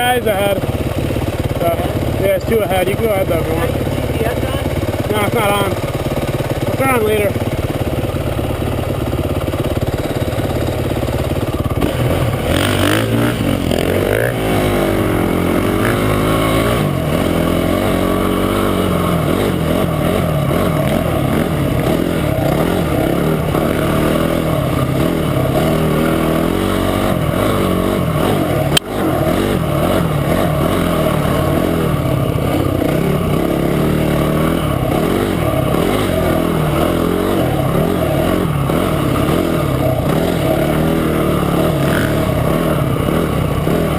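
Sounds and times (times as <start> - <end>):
motorcycle engine revving: 0.0 - 43.9
sharp click: 28.7 - 28.9.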